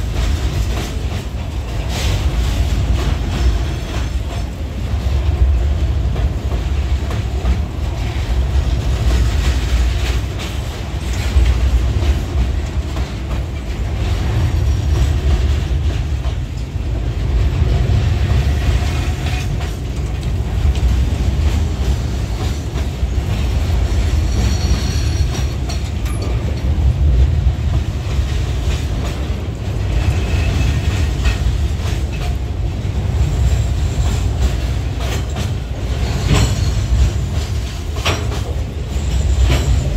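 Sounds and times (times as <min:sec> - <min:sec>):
steel wheels rumbling on rails: 0:00.0 - 0:39.9
faint high wheel squeals: 0:24.2 - 0:25.6
wheel clicks over rail joints: 0:34.3 - 0:38.7.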